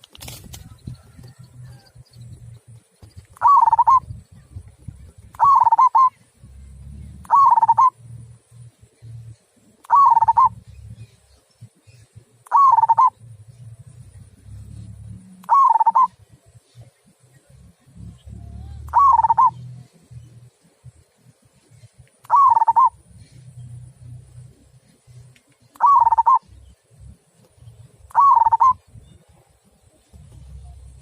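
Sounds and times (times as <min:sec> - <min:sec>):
low background rumble: 0:00.0 - 0:31.0
dove cooing: 0:03.4 - 0:11.1, 0:12.4 - 0:16.4, 0:17.9 - 0:20.5, 0:22.3 - 0:24.8, 0:25.7 - 0:26.6, 0:28.0 - 0:29.3.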